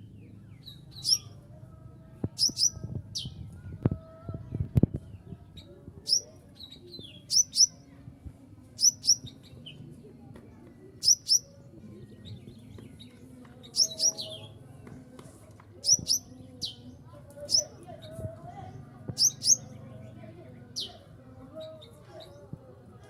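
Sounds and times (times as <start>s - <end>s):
bird chirping high: 1.0s - 1.3s, 2.4s - 3.3s, 6.1s - 6.3s, 7.2s - 7.8s, 8.8s - 9.4s, 11.0s - 11.5s, 13.8s - 14.4s, 15.8s - 16.8s, 17.5s - 17.7s, 19.2s - 19.7s
soft lower bird notes: 11.0s - 11.5s.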